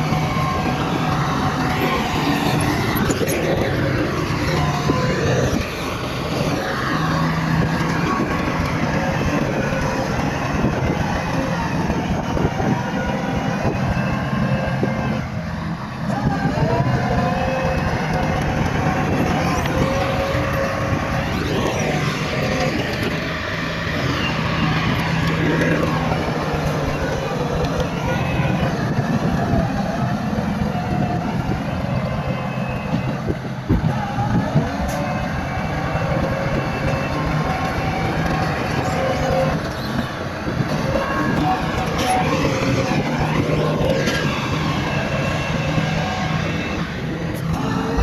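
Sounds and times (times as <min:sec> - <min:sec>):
bulldozer diesel engine under load: 0:00.0 - 0:48.0.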